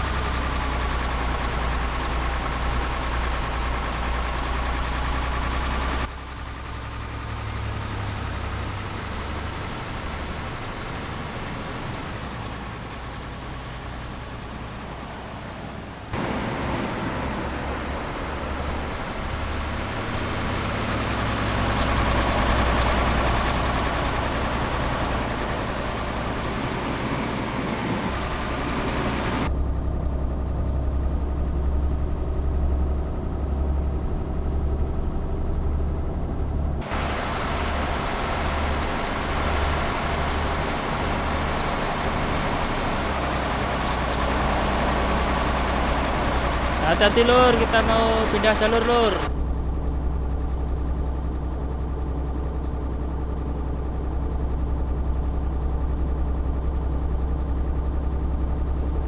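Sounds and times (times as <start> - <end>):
truck engine humming: 0.0 - 59.0
road and wind hiss: 7.4 - 29.5, 36.8 - 49.3.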